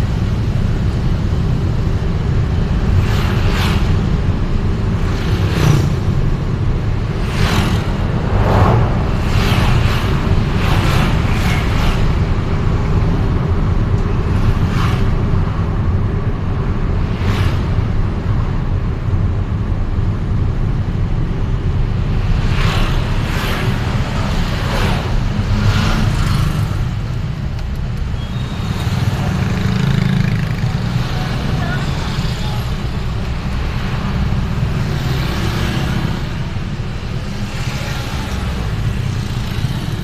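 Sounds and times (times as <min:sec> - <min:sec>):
vehicle engine and road rumble: 0:00.0 - 0:40.0
vehicles whooshing past: 0:01.4 - 0:18.8, 0:21.6 - 0:40.0.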